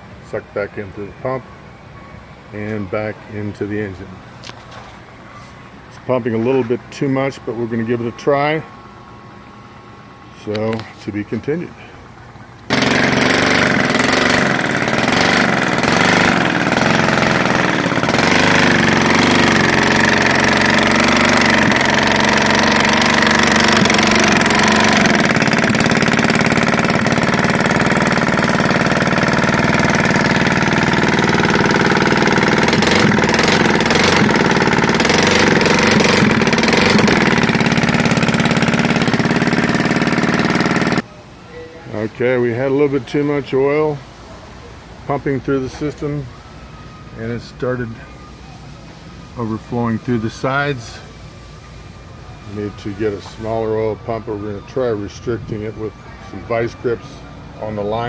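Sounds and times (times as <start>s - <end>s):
loud engine running unmuffled: 9.6s - 41.1s.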